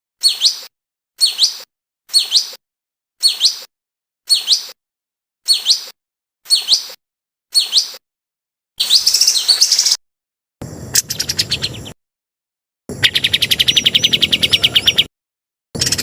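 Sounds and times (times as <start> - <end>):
bird song chirps and trills: 0.2 - 2.6, 3.2 - 3.7, 4.3 - 4.8, 5.4 - 8.0, 8.8 - 10.0, 10.9 - 12.0, 12.9 - 15.1, 15.8 - 16.0.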